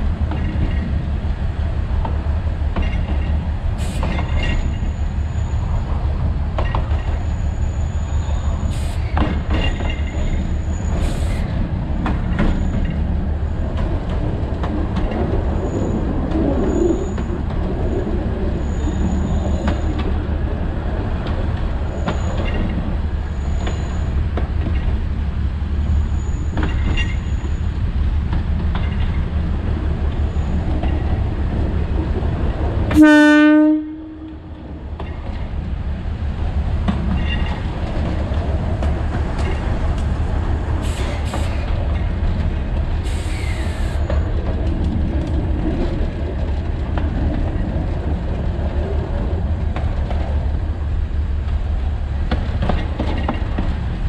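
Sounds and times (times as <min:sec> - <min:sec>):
wheels clacking on track: 0:00.0 - 0:33.1, 0:33.9 - 0:54.0
train rumbling: 0:00.0 - 0:54.0
wheel squeal: 0:26.0 - 0:27.7.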